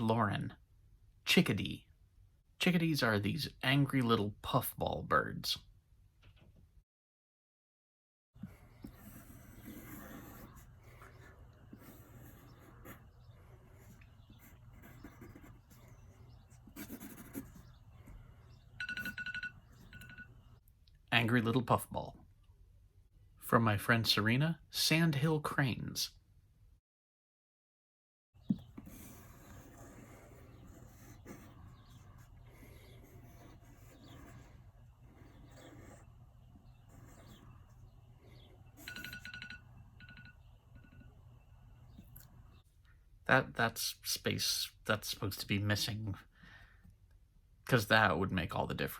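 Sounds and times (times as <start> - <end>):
pen scratching on paper: 8.4 - 20.1, 28.4 - 39.4
electronic timer alarm beeping: 18.8 - 20.6, 38.8 - 41.2.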